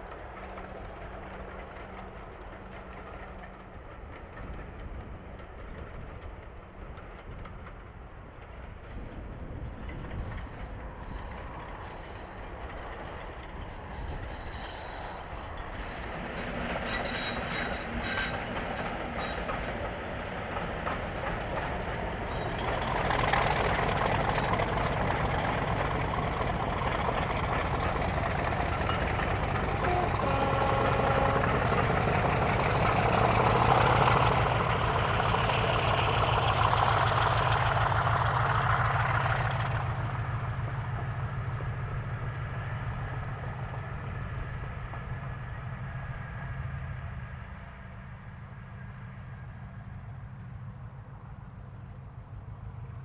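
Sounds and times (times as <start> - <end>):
diesel locomotive engine beat: 0.0 - 53.0
wheels clicking over rail joints: 15.6 - 42.3.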